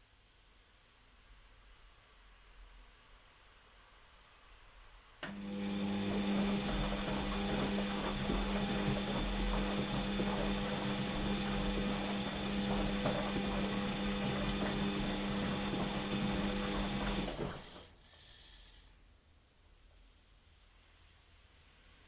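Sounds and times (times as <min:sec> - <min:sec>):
washing machine running: 0:05.2 - 0:18.0.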